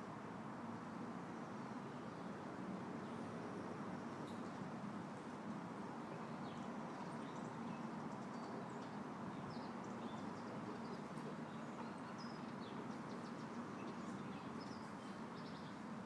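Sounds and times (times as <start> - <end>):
small birds chirping: 6.2 - 15.9.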